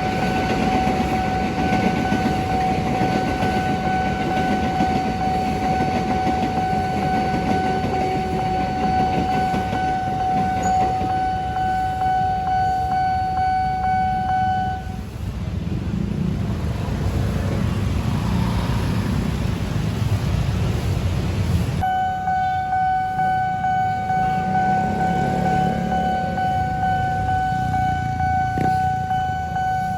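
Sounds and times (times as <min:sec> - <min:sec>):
crossing warning tone: 0:00.0 - 0:15.0, 0:21.8 - 0:29.9
train rumbling: 0:00.0 - 0:29.9.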